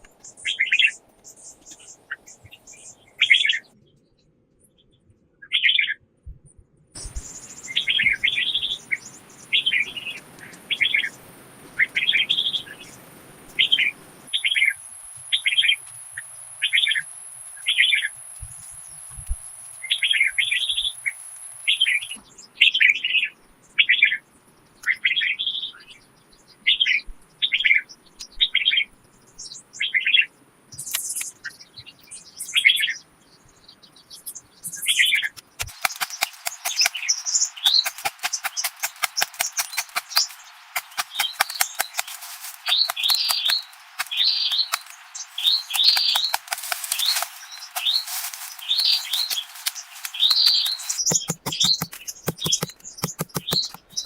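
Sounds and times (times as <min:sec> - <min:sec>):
bird chirping: 0:00.0 - 0:06.0, 0:07.0 - 0:18.1, 0:30.8 - 0:54.0
faint outdoor hiss: 0:07.0 - 0:54.0.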